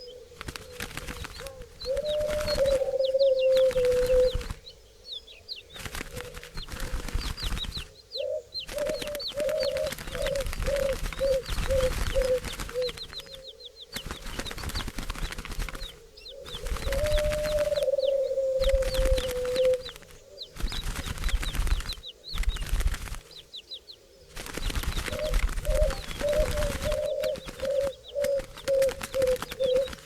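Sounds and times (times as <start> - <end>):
long low bird call: 0.0 - 6.4, 16.0 - 20.6, 25.0 - 30.0
small birds chirping: 0.0 - 30.0.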